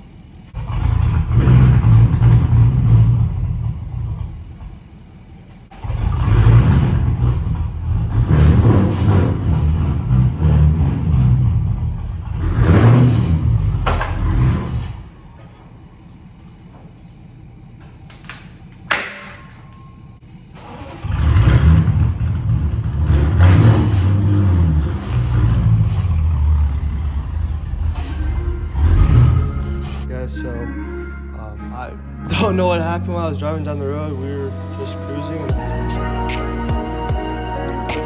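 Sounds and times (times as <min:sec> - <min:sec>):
car engine revving: 0:00.0 - 0:18.8, 0:20.2 - 0:30.4.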